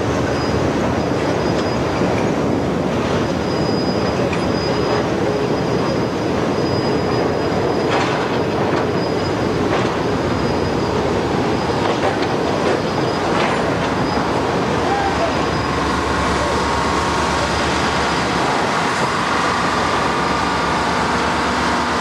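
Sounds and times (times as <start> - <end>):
train wheels rumbling on rails: 0.0 - 22.0
high wheel squeal: 3.2 - 8.2, 8.8 - 22.0
clicks over rail joints: 7.8 - 21.7.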